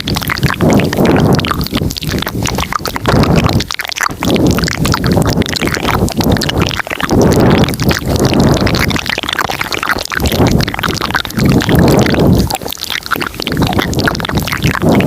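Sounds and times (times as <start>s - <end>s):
wet mouth clicks and smacks: 0.0s - 15.0s.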